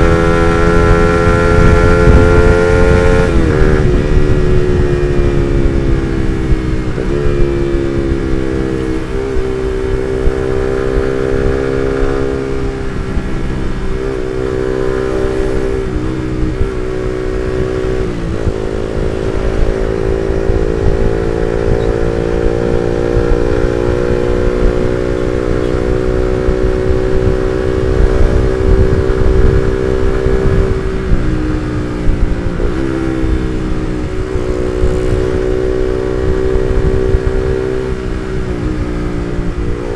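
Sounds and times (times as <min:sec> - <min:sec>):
motorcycle engine with gear changes: 0:00.0 - 0:39.9.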